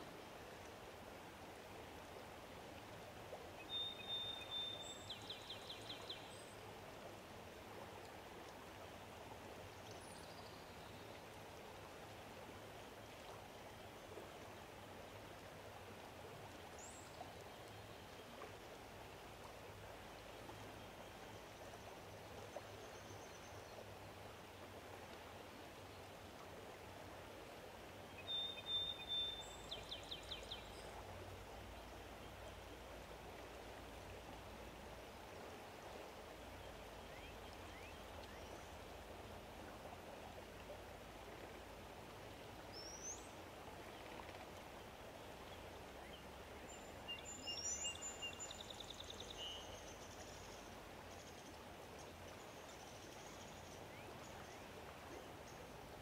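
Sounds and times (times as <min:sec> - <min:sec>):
steady outdoor hiss: 0:00.0 - 0:56.0
songbird singing: 0:03.6 - 0:06.6, 0:28.1 - 0:32.8, 0:36.4 - 0:39.1, 0:42.7 - 0:55.9.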